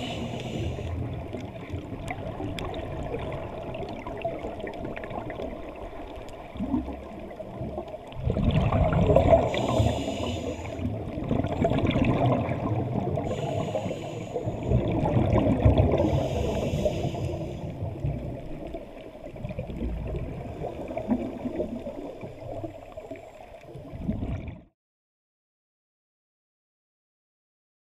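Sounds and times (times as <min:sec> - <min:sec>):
hissing regulator inhalations: 0:00.0 - 0:01.1, 0:09.4 - 0:10.9, 0:13.2 - 0:14.8, 0:15.9 - 0:17.8
bubbling exhaled air underwater: 0:00.0 - 0:24.7.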